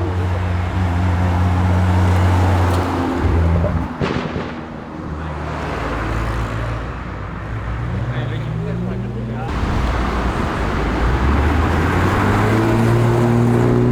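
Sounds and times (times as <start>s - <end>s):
car engine rumble: 0.0s - 13.9s
short sharp crack: 3.9s - 4.9s.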